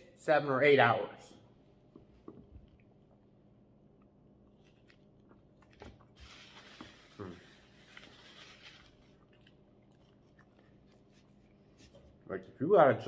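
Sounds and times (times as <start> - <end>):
man chewing food: 1.9 - 12.2.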